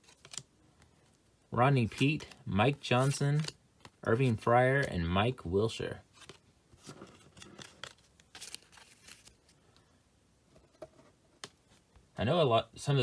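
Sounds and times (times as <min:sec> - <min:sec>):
wrappers rustling: 0:06.2 - 0:09.6.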